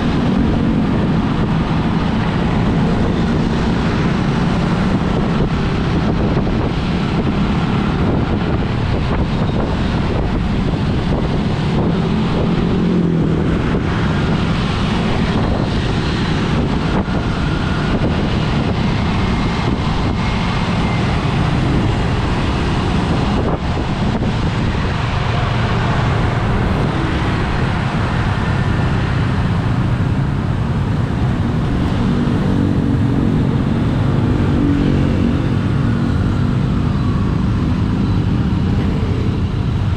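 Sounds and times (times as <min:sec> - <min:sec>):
wind buffeting microphone: 0:00.0 - 0:39.9
vehicle engine running: 0:08.1 - 0:39.9.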